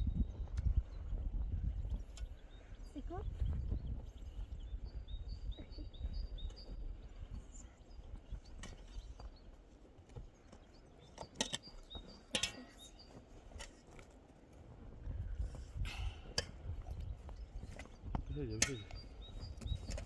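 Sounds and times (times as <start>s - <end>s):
small bird chirping: 0.0s - 9.6s, 10.4s - 13.7s, 16.9s - 20.0s.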